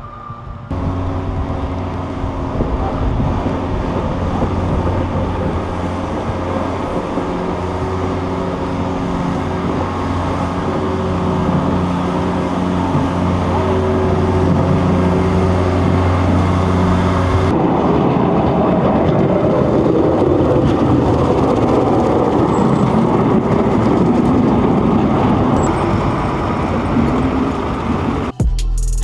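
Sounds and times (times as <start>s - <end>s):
vehicle engine hum: 0.0s - 29.0s.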